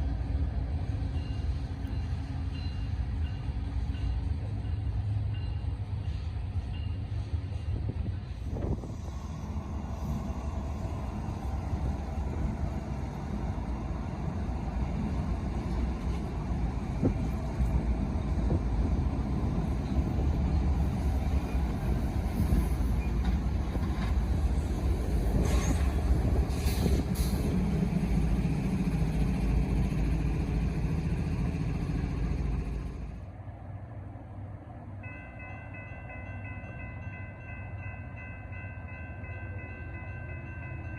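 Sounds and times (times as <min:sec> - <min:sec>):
train running: 0:00.0 - 0:40.9
wind buffeting microphone: 0:07.5 - 0:30.1.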